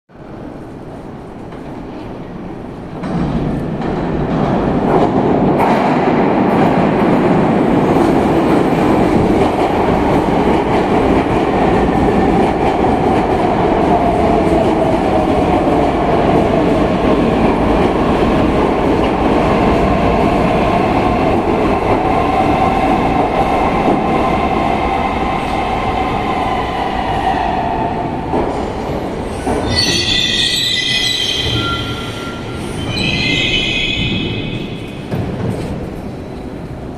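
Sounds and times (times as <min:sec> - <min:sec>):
metro train rumbling and whining: 0:00.1 - 0:36.9
wheel and brake squealing: 0:29.6 - 0:34.9.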